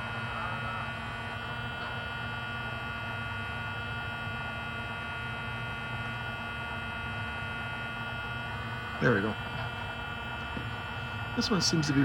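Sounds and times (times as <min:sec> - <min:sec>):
diesel engine idle through small speaker: 0:00.0 - 0:03.6, 0:08.0 - 0:12.0.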